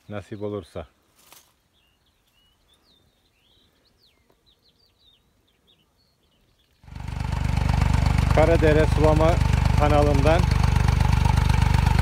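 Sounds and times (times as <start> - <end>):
faint birdsong: 0.0 - 7.3.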